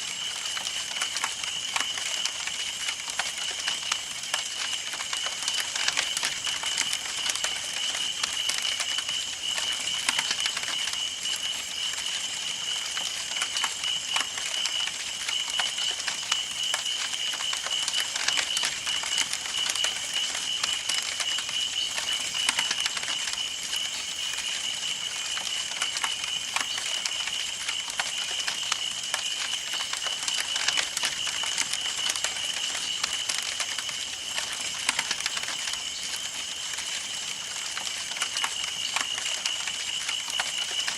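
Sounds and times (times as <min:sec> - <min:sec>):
wood crackling and popping: 0:00.0 - 0:40.9.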